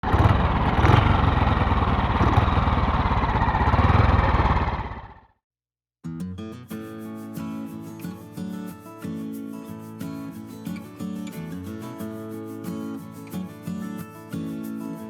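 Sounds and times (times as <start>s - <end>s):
motorcycle engine running: 0.0s - 5.3s
guitar music: 6.1s - 15.0s.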